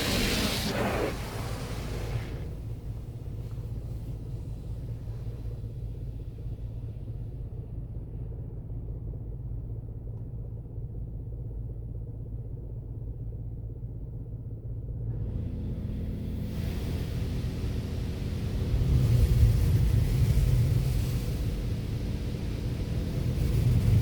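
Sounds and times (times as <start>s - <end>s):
hiss: 0.0s - 5.9s, 15.3s - 24.0s
car wash rumble: 0.0s - 8.2s, 15.1s - 24.0s
low hum: 0.0s - 24.0s.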